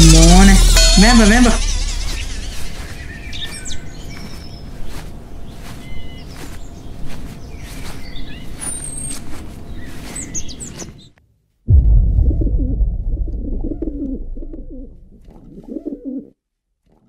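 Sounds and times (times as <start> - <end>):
birds chirping: 1.2 - 11.1
low outdoor rumble: 11.7 - 15.6.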